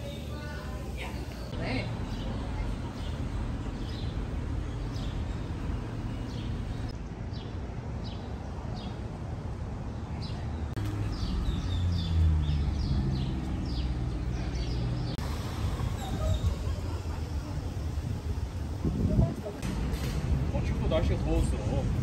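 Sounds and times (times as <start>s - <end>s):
small birds chirping: 0.0s - 9.1s, 9.9s - 16.6s.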